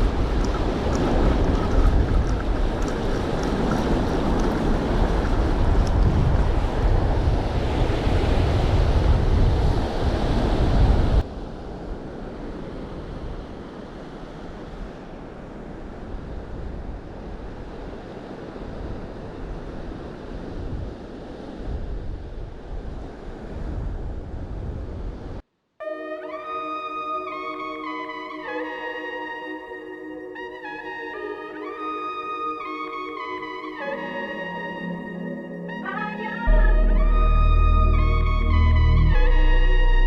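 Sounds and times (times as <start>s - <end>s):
ocean surf on beach: 0.0s - 25.4s
wind buffeting microphone: 0.0s - 25.4s.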